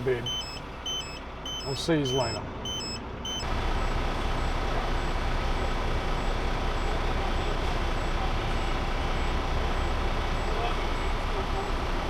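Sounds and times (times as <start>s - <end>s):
road and cab noise: 0.0s - 12.0s
truck engine running: 0.0s - 12.0s
faint high beep: 0.2s - 5.2s.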